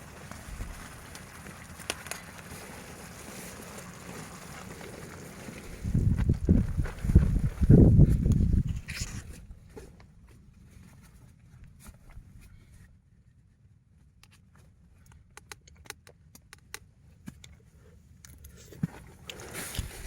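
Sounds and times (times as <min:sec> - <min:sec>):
wind rumble: 0:05.6 - 0:09.6.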